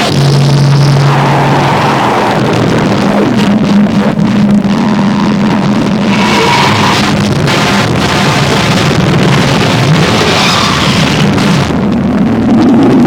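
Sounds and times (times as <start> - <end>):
distorted noise music: 0.0 - 13.0
low drone: 0.0 - 13.0.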